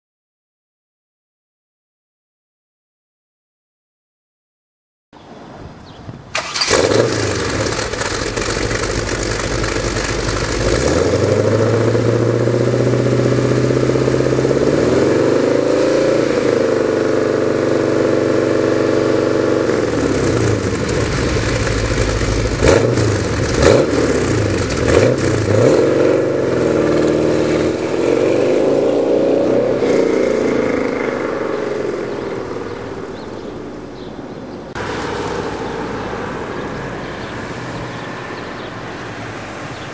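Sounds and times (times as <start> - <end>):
loud car engine revving: 6.4 - 32.8.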